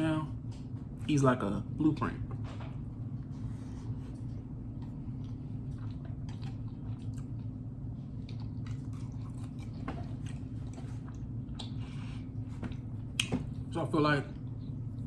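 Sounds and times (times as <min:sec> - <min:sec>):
man chewing food: 0:02.2 - 0:13.7.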